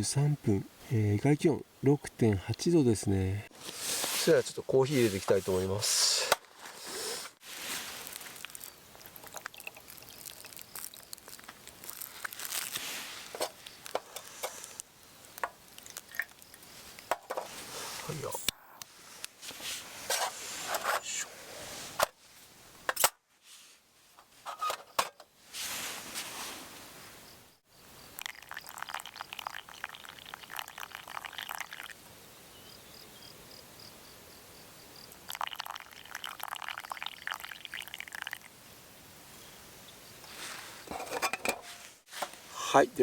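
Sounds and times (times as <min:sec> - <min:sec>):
water pouring: 0:07.6 - 0:12.1, 0:28.2 - 0:32.0, 0:35.3 - 0:38.5.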